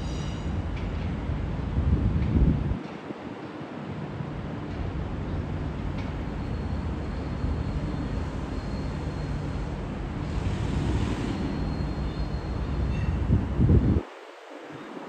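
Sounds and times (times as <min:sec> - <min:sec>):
electric train rumbling: 0:00.0 - 0:14.1
faint high whine: 0:06.2 - 0:13.7.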